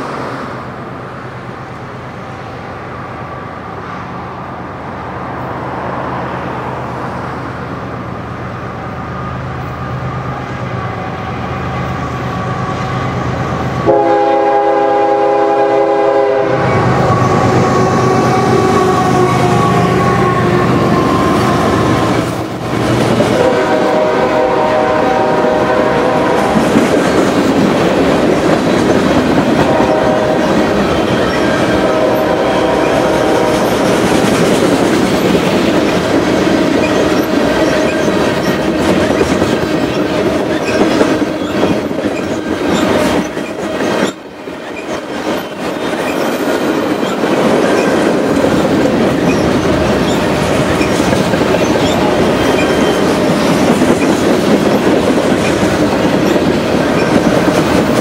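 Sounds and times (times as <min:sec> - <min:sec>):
diesel locomotive rumble: 0:00.0 - 0:58.0
locomotive horn blasts: 0:10.8 - 0:22.3, 0:23.3 - 0:26.7, 0:29.6 - 0:33.9.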